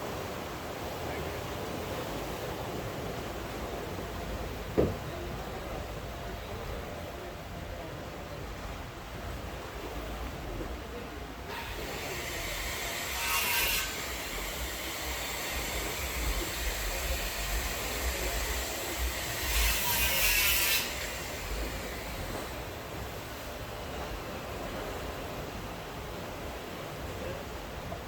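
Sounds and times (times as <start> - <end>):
rain hiss: 8.2 - 28.0.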